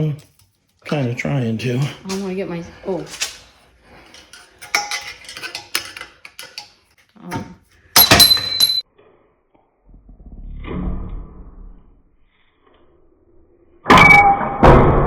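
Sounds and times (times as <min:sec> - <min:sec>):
metal tools clinking on metal: 0:00.0 - 0:07.1, 0:07.9 - 0:08.8
ringing metal clatter: 0:04.0 - 0:06.7, 0:08.0 - 0:08.8.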